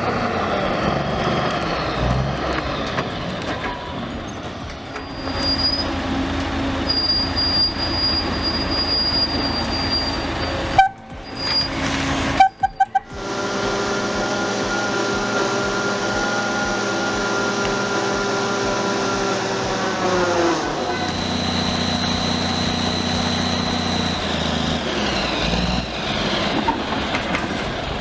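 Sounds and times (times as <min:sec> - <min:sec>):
cable machinery running: 0:00.0 - 0:28.0
cables squealing: 0:00.0 - 0:28.0
steady machine whine: 0:00.0 - 0:28.0.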